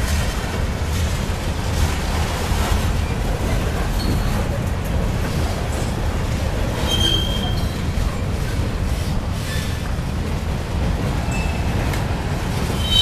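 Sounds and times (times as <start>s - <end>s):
freight train wheels rumbling: 0.0s - 13.0s
faint high wheel squeal: 6.8s - 8.0s, 11.3s - 11.7s, 12.8s - 13.0s.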